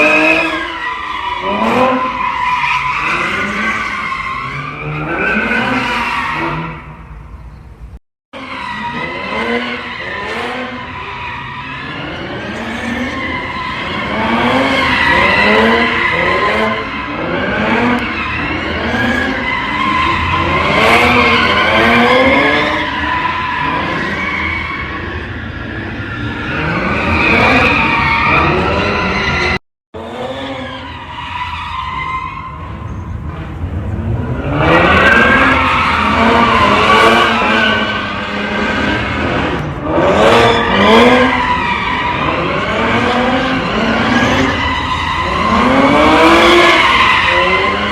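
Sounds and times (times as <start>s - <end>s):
car engine revving: 8.5s - 25.0s, 33.2s - 47.9s.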